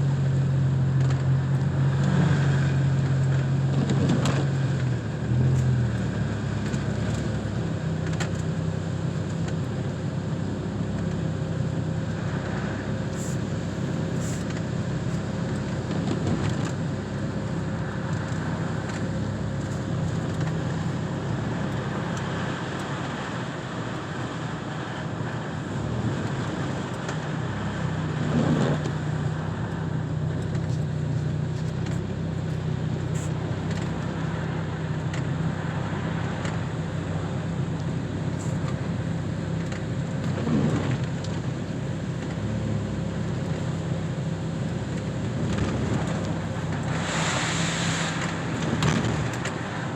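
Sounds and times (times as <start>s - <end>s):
car engine hum: 0.0s - 49.9s
road noise: 0.0s - 49.9s.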